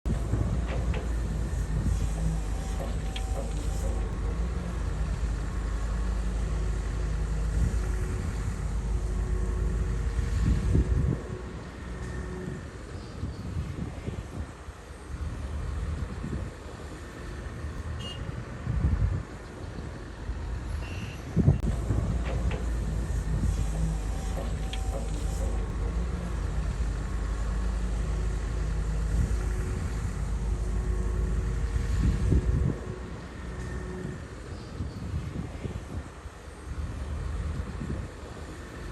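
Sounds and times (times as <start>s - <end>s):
bulldozer diesel engine rumbling: 0.0s - 14.1s, 19.3s - 35.7s.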